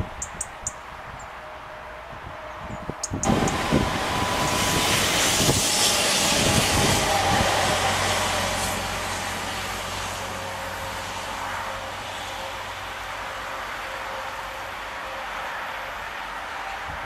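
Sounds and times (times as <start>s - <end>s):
train passing: 0.0s - 17.0s
wind on microphone: 2.0s - 9.5s.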